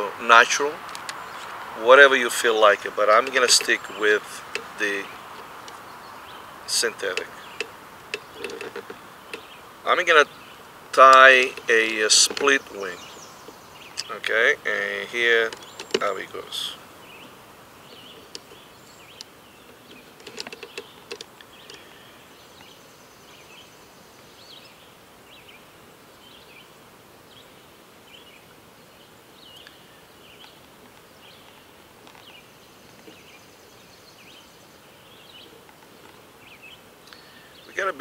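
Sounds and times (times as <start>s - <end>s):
faint background hiss: 0.0s - 38.0s
small birds chirping: 0.0s - 38.0s
light clicks: 0.8s - 1.6s.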